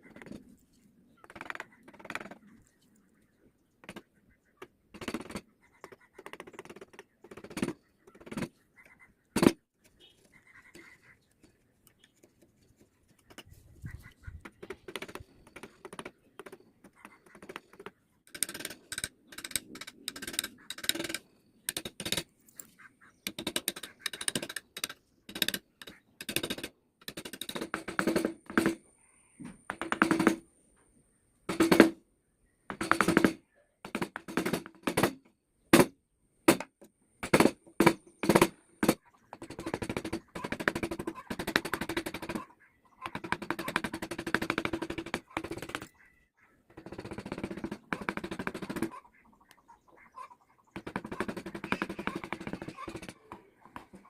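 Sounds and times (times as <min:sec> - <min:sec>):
wood carving rasps: 0:14.4 - 0:22.3, 0:43.0 - 0:45.9, 0:46.8 - 0:48.9, 0:50.7 - 0:53.9.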